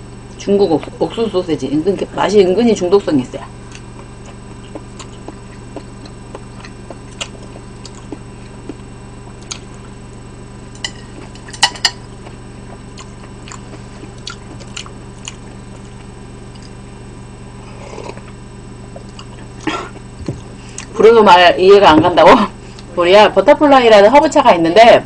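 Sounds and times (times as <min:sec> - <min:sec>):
steady low hum: 0:00.0 - 0:25.0
mouth clicks and smacks: 0:03.7 - 0:09.8, 0:11.3 - 0:16.8
person chewing: 0:03.7 - 0:10.0, 0:10.7 - 0:17.0, 0:17.6 - 0:21.0.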